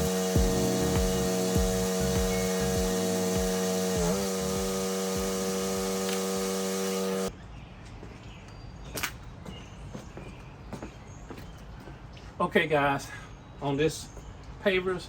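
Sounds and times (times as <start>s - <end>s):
pressure washer engine running: 0.0s - 7.3s.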